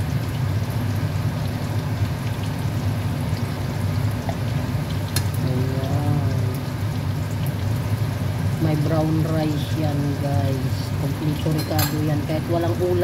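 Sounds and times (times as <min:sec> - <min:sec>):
food sizzling in oil: 0:00.0 - 0:13.0
metal spoon clinking on pan: 0:11.5 - 0:12.2.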